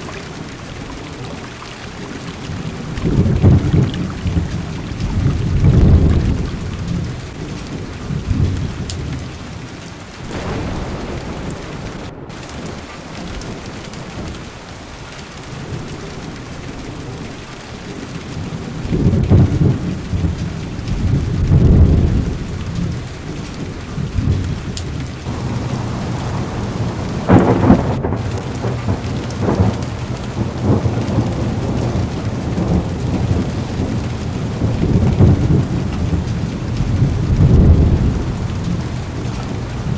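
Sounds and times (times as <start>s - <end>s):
heavy rain on car roof: 0.0s - 39.9s
thunder rumbling: 2.5s - 9.2s, 10.2s - 17.3s, 18.3s - 39.9s
thunder clap: 3.0s - 7.2s, 10.3s - 15.0s, 18.4s - 23.0s, 24.0s - 39.9s.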